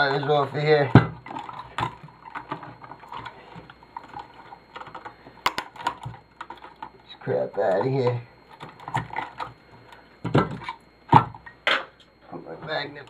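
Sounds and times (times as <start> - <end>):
small parts clicking and rattling: 0.8 - 10.0.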